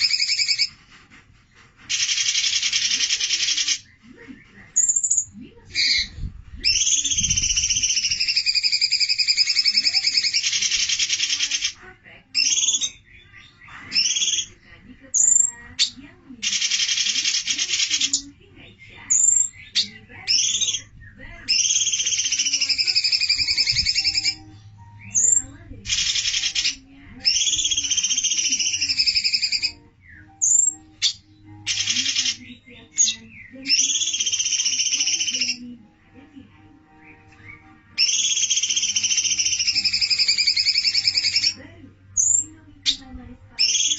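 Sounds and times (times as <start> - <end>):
songbird trilling: 0.0 - 0.7, 4.8 - 11.8, 13.9 - 14.6, 15.2 - 18.3, 19.1 - 35.6, 37.0 - 41.6, 42.2 - 43.0, 43.6 - 43.9
sharp high bird notes: 21.5 - 35.6, 36.8 - 41.6.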